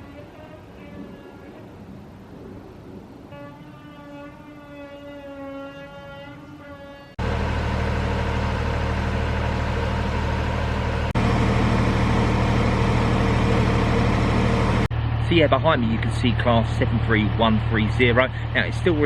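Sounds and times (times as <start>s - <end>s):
diesel locomotive engine running: 6.7s - 19.0s.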